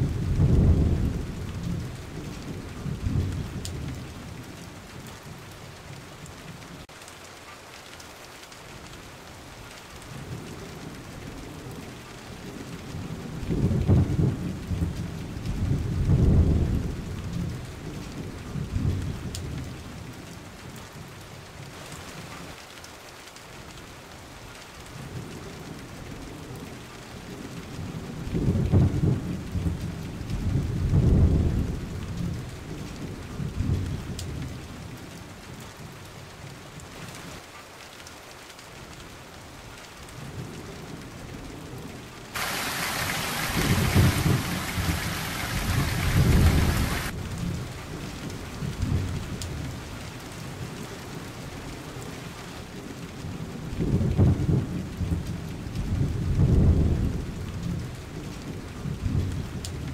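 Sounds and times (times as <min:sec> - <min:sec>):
rolling thunder: 0:00.0 - 0:04.0, 0:13.5 - 0:17.5, 0:42.4 - 0:47.7, 0:55.9 - 0:57.8
heavy downpour hiss: 0:00.0 - 0:59.9
steady rain falling: 0:00.0 - 0:59.9.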